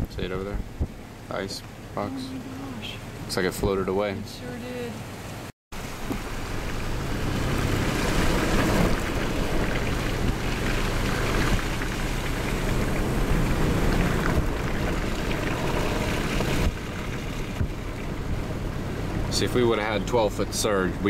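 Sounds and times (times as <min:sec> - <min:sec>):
vehicle engine hum: 0:00.0 - 0:21.0
water noise: 0:00.0 - 0:21.0
wind rushing: 0:06.0 - 0:19.3.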